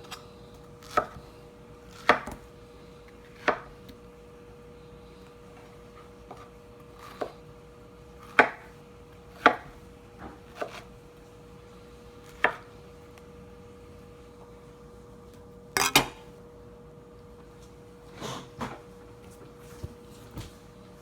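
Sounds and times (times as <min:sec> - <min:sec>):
kitchen tools and dishes clattering: 0:15.8 - 0:16.3.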